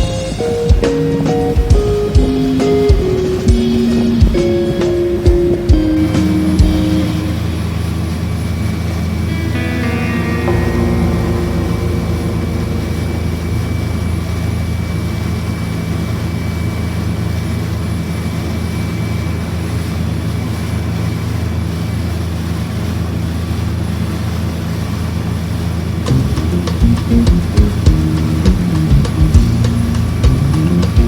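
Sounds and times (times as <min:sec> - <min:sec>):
boat engine droning: 0:00.0 - 0:31.0.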